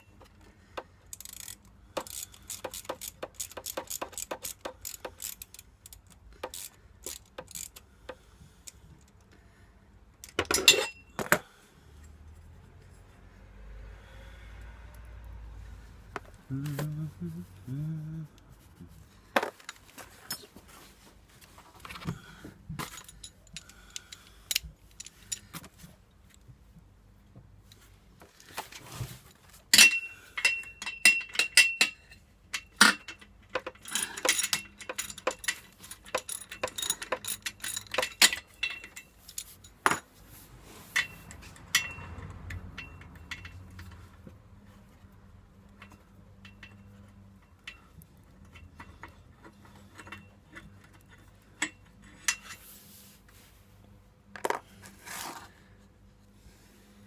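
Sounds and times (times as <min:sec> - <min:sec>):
metal tools clinking and clicking: 0:01.1 - 0:07.8, 0:10.2 - 0:11.4, 0:19.5 - 0:20.6, 0:22.8 - 0:25.7, 0:29.7 - 0:40.1, 0:40.9 - 0:44.1, 0:45.7 - 0:52.6.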